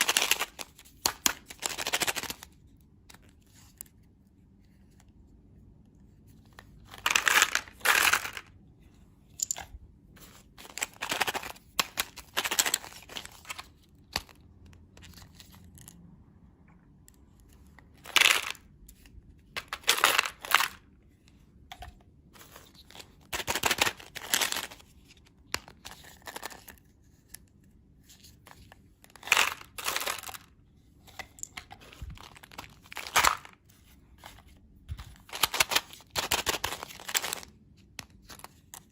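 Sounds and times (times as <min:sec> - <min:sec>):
plastic wrappers crinkling and tearing: 0:22.4 - 0:25.2, 0:31.7 - 0:33.6, 0:34.9 - 0:37.5.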